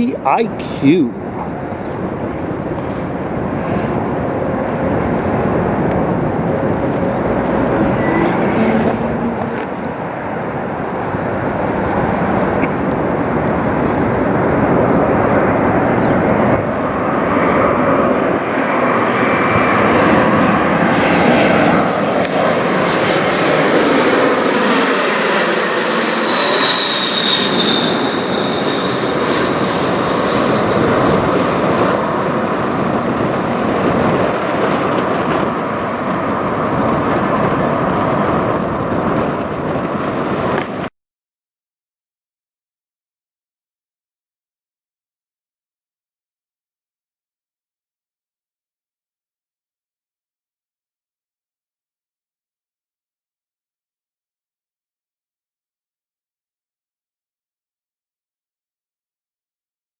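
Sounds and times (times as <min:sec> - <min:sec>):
jet engine roar: 0:00.0 - 0:40.9
high whine sliding down: 0:02.5 - 0:17.0, 0:19.4 - 0:40.9.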